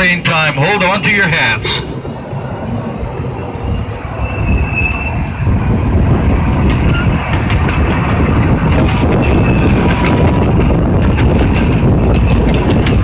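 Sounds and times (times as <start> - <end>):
small train running on track: 0.0 - 13.0
high wheel squeals: 3.2 - 5.4, 6.8 - 7.3, 9.0 - 10.3.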